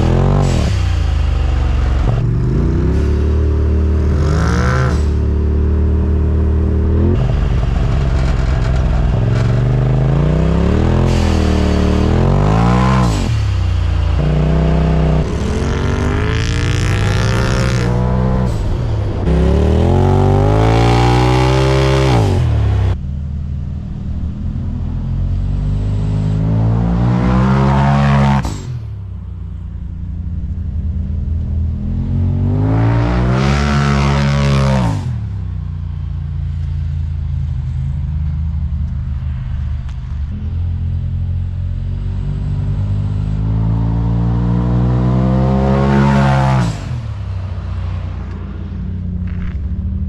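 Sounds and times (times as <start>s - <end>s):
engine revving loudly: 0.0s - 23.0s, 25.5s - 29.0s, 31.7s - 35.3s, 42.6s - 47.2s.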